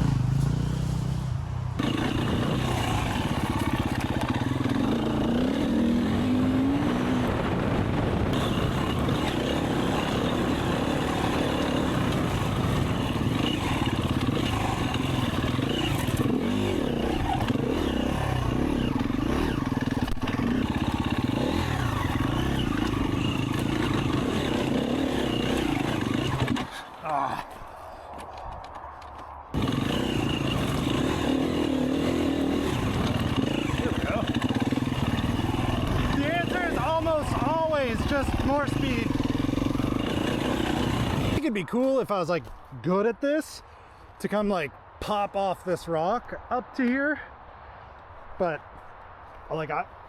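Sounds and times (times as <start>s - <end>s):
dirt bike engine revving: 0.0s - 26.9s, 29.6s - 41.4s.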